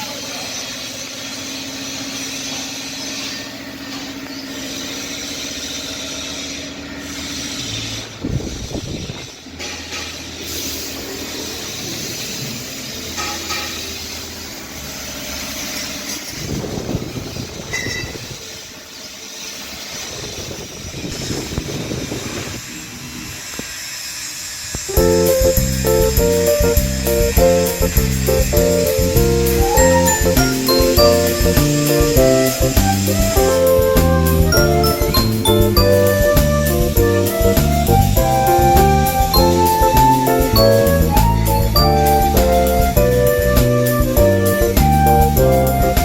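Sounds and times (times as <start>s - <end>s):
seed separator machine humming: 20.2s - 45.8s.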